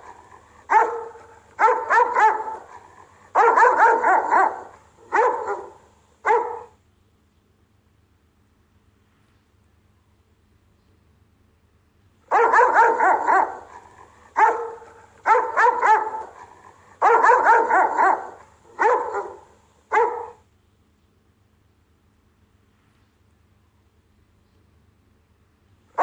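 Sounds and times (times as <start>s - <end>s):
dog barking: 0.0s - 6.8s, 12.3s - 20.4s.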